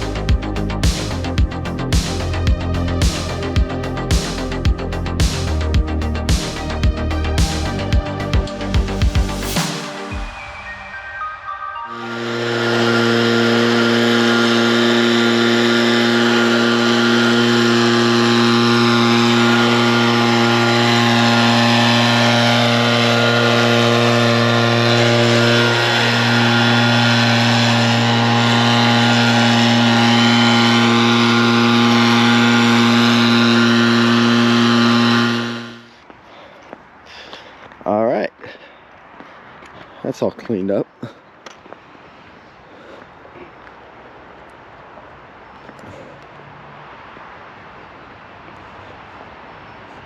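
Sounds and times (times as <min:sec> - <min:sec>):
engine running at high speed: 0:00.0 - 0:11.0, 0:11.8 - 0:36.0.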